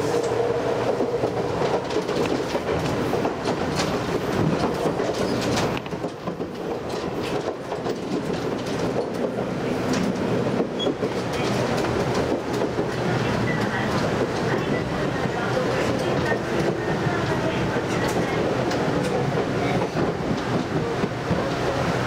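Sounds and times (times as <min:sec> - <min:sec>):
rail-joint clicks: 0:00.0 - 0:21.9
train wheels rumbling on rail: 0:00.0 - 0:22.0.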